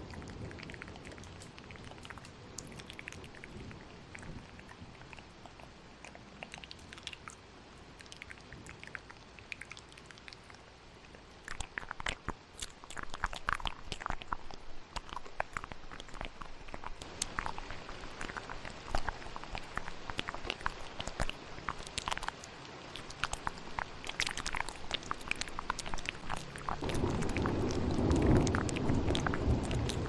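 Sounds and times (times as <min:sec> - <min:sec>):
steady rain: 0:00.0 - 0:10.1, 0:16.4 - 0:30.0
wet mouth clicks and smacks: 0:00.0 - 0:30.0.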